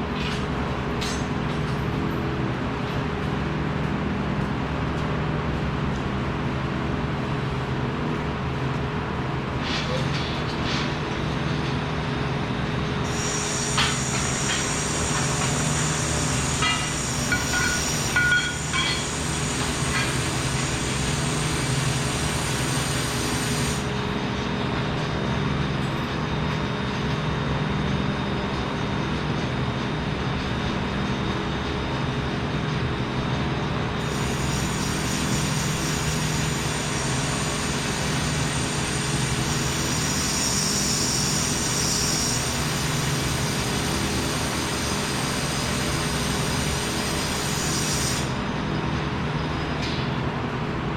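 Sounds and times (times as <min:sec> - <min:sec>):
short metallic clinks: 0:16.7 - 0:19.1.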